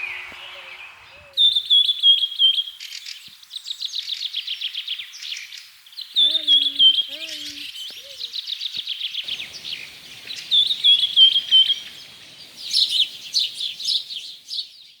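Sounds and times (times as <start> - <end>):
songbirds singing: 0.0 - 15.0
bird trills and chatter: 5.3 - 14.8.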